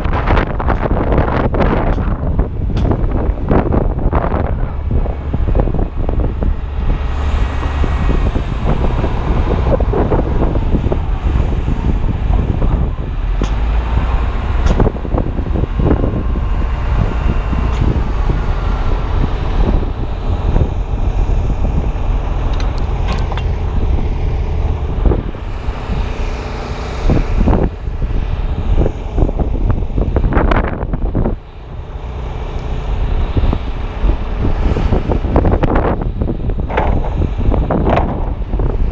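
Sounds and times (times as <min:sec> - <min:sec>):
wind buffeting a microphone: 0:00.0 - 0:38.9
sharp knocks: 0:36.7 - 0:38.4.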